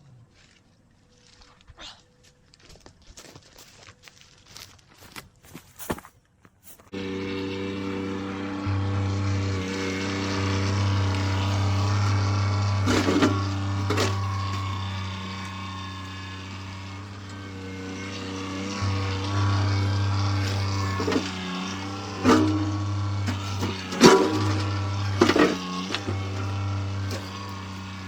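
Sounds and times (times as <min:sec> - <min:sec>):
tractor diesel engine running: 0:07.0 - 0:28.0.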